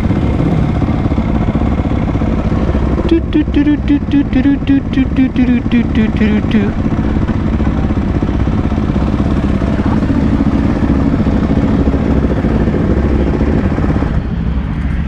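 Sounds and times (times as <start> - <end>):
motorcycle engine running: 0.0 - 14.3.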